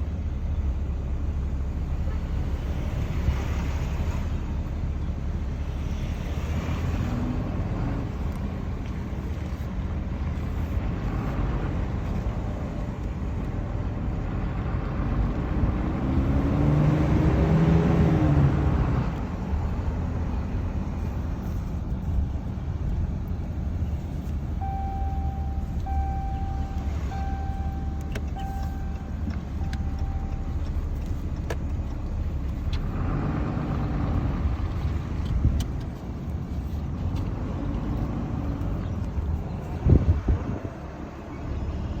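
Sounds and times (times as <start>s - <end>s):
pickup engine rumble: 0.0s - 42.0s
pitched whine: 24.5s - 31.4s
short beeps: 24.6s - 30.9s.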